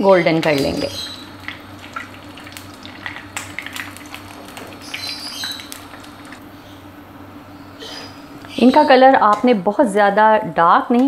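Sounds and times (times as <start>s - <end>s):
crackles and pops of frying: 0.0s - 6.5s
bread sizzling in a frying pan: 0.0s - 6.6s.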